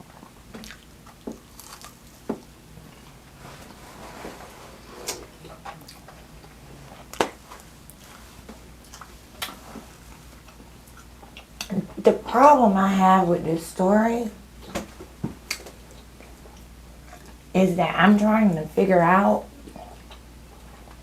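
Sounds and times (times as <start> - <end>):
chewing and wet mouth noises: 0.2 - 2.2, 5.1 - 8.1, 8.8 - 11.7, 15.5 - 17.4, 19.6 - 21.0
sharp mouth clicks and smacks: 15.5 - 17.4.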